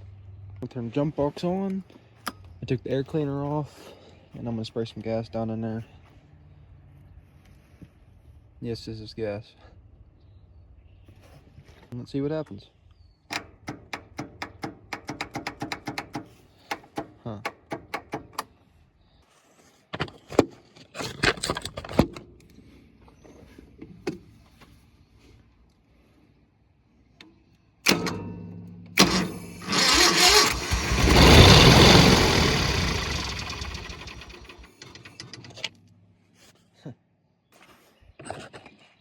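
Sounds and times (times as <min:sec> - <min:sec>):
engine running: 0:28.9 - 0:35.6
starter motor cranking: 0:29.0 - 0:35.6.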